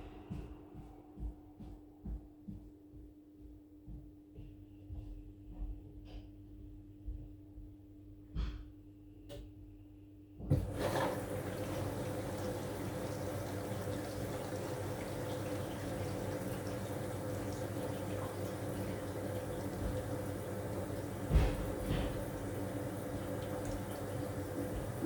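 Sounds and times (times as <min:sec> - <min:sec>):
washing machine hum: 0:00.0 - 0:03.0, 0:10.4 - 0:25.0
water rushing into washing machine: 0:10.4 - 0:25.0.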